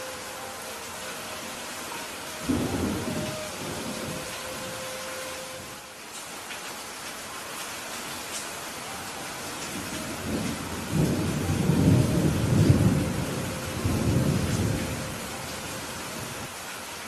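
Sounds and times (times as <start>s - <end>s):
steady rain falling: 0.0s - 17.0s
thunder rumbling: 2.3s - 4.8s, 9.6s - 16.5s.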